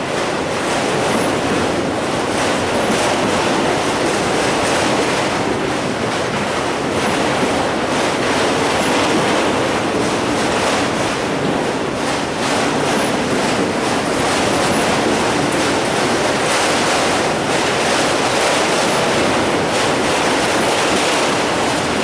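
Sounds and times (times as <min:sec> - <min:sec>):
wheels clacking over rail joints: 0:00.0 - 0:22.0.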